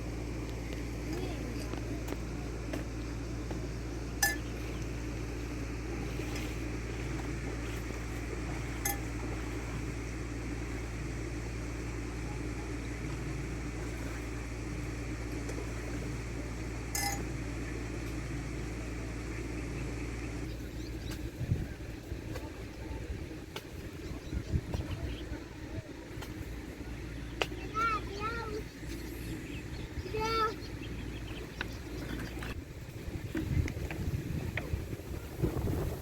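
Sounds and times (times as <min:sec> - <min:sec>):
steady low hum: 0:00.0 - 0:36.0
dishes clinking: 0:04.2 - 0:04.5, 0:17.0 - 0:17.3.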